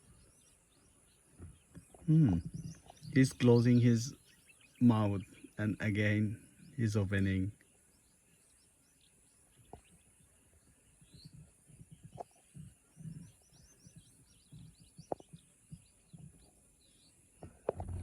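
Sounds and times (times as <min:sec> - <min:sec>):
small bird chirps: 0:00.0 - 0:18.0
soft low thumps: 0:01.3 - 0:03.2.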